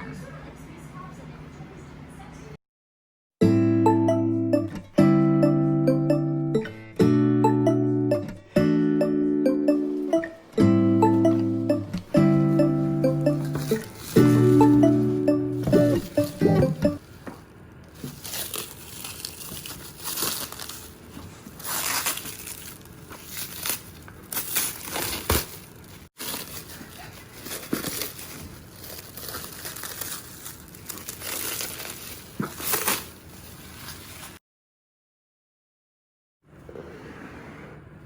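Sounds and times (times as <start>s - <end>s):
packaging crinkling and rustling: 17.0s - 34.4s.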